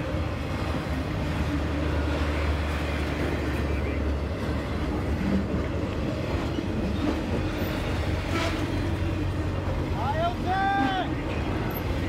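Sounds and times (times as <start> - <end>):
freight train wheels rumbling on rail: 0.0 - 12.0.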